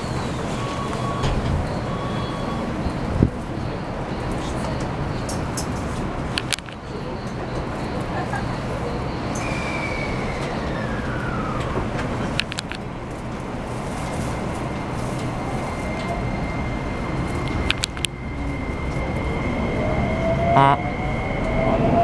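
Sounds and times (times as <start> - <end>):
train inverter whine: 0.0 - 22.0
sharp clicks: 6.4 - 6.8, 12.4 - 12.8, 17.4 - 18.1.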